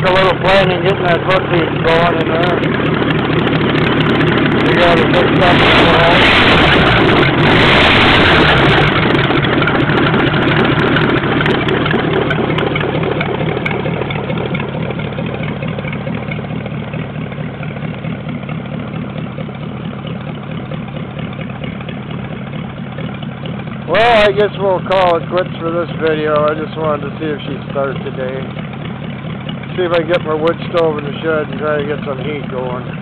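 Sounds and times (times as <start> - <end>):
engine idling: 0.0 - 33.0.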